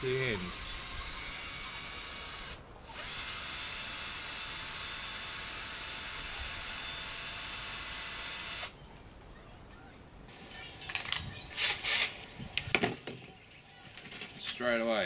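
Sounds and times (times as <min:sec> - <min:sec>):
electric drill running: 0:00.6 - 0:08.7, 0:10.3 - 0:12.7.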